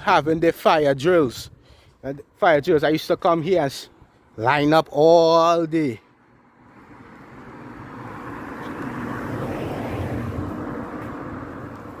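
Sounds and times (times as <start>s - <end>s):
vehicle rumble passing: 6.1s - 12.0s.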